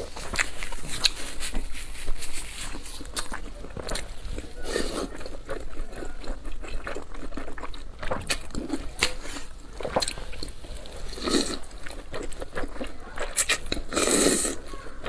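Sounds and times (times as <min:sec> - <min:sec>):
wet chewing and smacking: 0:00.0 - 0:15.0.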